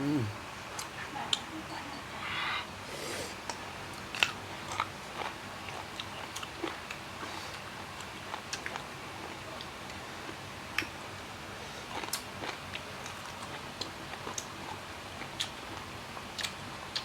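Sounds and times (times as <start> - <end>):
person chewing with crunches: 3.0 - 10.9, 11.8 - 17.0.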